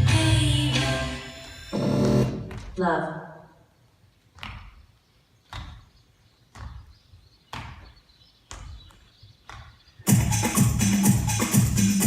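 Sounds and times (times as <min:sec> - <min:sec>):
electronic dance music: 0:00.0 - 0:02.5, 0:10.1 - 0:12.0.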